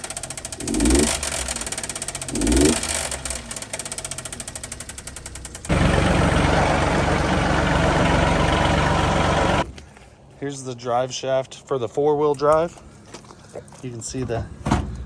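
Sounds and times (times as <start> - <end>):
mini-truck engine running: 0.0 - 9.7.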